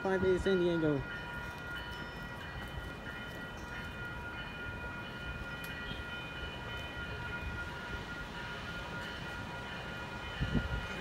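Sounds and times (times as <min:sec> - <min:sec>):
distant train rumble: 0:00.0 - 0:11.0
high ringing tones: 0:00.0 - 0:11.0.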